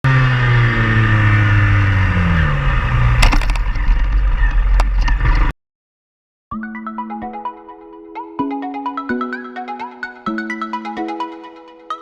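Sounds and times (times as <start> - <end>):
motorcycle engine slowing: 0.1 - 5.5.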